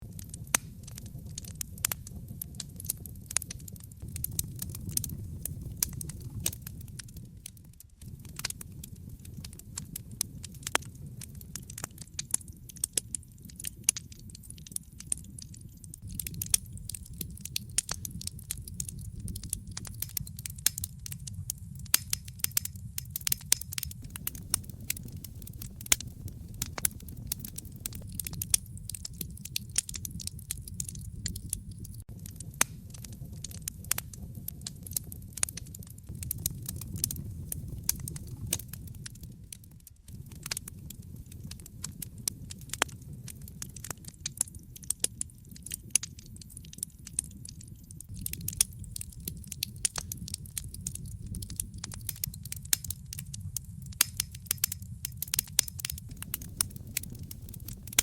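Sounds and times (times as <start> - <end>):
fire crackling and popping: 0.0 - 58.0
low rumble of flames: 0.0 - 58.0.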